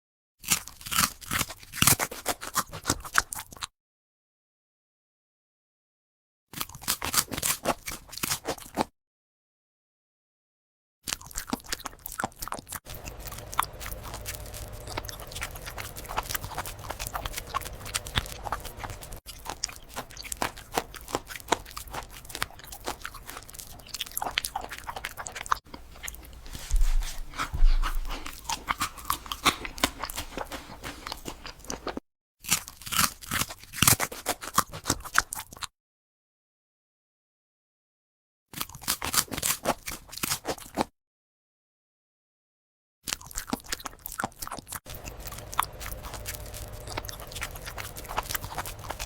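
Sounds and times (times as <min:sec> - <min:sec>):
dog crunching food: 0:00.4 - 0:03.7, 0:06.6 - 0:08.8, 0:11.1 - 0:35.6, 0:43.1 - 0:49.0.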